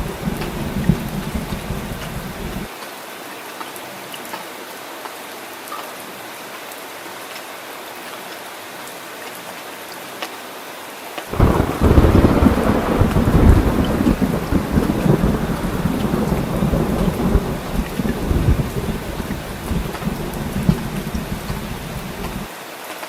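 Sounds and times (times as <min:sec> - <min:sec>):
deep thunder rumble: 0:00.0 - 0:02.7, 0:11.3 - 0:22.5
steady rain hiss: 0:00.0 - 0:23.0.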